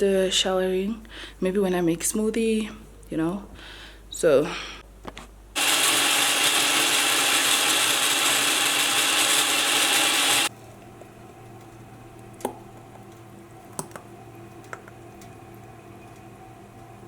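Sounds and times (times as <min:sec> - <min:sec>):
blender running: 0:05.6 - 0:10.5.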